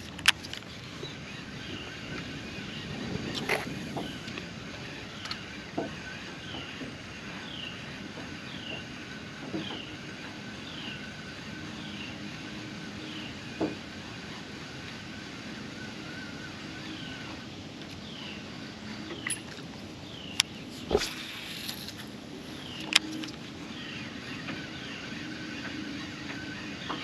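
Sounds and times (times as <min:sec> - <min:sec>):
steady low hum: 0:00.0 - 0:27.0
bird chirping: 0:15.4 - 0:27.0.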